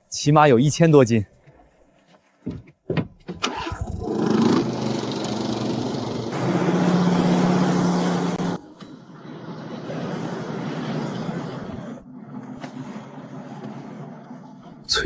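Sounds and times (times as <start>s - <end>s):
boat engine starting and running: 3.4s - 12.1s.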